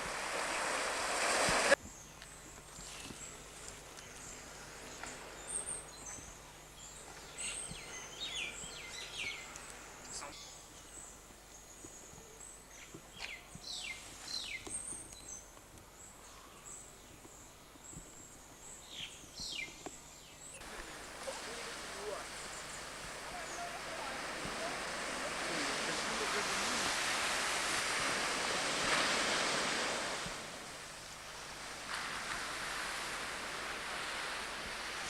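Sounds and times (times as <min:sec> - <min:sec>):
high steady bird twittering: 0:05.0 - 0:10.9.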